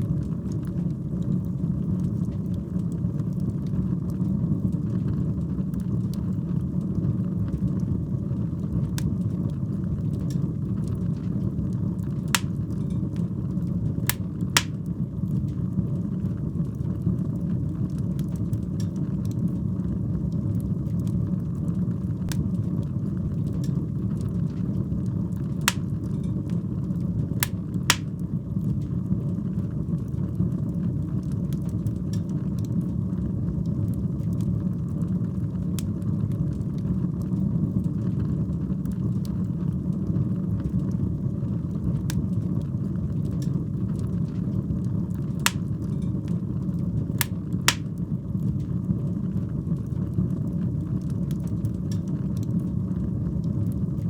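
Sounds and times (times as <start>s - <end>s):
fire crackling and popping: 8.6s - 15.6s, 22.3s - 28.9s, 44.9s - 48.7s
fire flames burning: 12.3s - 13.2s, 14.1s - 15.1s, 25.6s - 26.1s, 27.4s - 28.2s, 45.5s - 45.9s, 47.1s - 48.0s.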